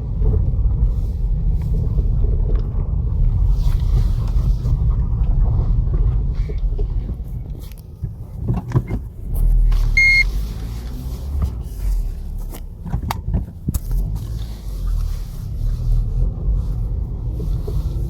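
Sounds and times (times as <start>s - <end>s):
low road rumble: 0.0s - 18.0s
suspension clunking over bumps: 0.0s - 18.0s
short high tone: 10.0s - 10.2s.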